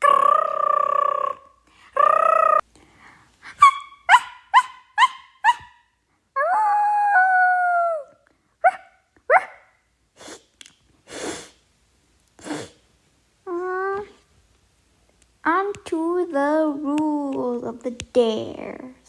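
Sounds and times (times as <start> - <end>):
person making long call: 0.0 - 2.7
breathy hisses: 10.2 - 11.6.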